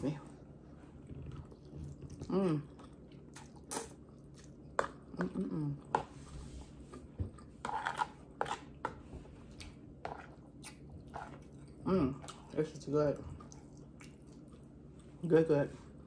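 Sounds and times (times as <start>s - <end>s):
person slurping and chewing noodles: 1.0s - 5.1s, 6.1s - 12.5s.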